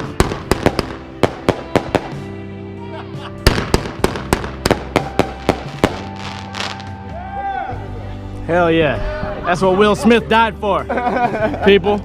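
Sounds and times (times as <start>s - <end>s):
fireworks cracking: 0.0s - 2.3s, 3.4s - 7.0s
music: 0.0s - 12.0s.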